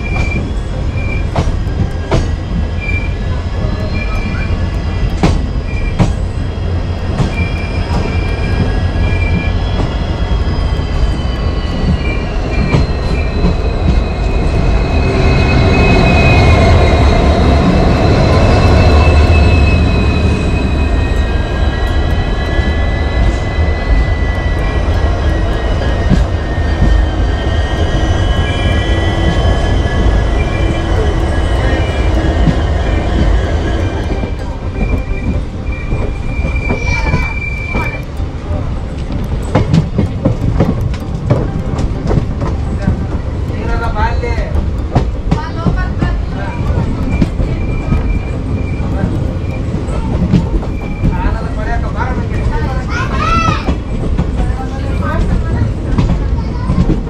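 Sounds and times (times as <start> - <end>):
high wheel squeal: 0.0 - 38.0, 46.4 - 54.1
train wheels rumbling on rail: 0.0 - 57.0.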